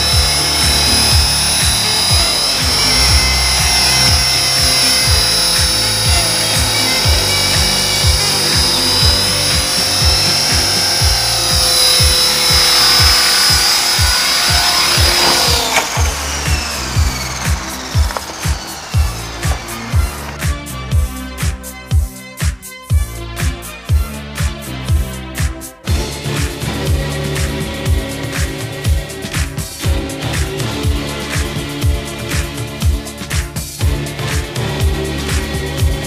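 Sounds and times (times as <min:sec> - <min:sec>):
toy helicopter motor whining: 0:00.0 - 0:21.1
music playing: 0:00.0 - 0:36.0.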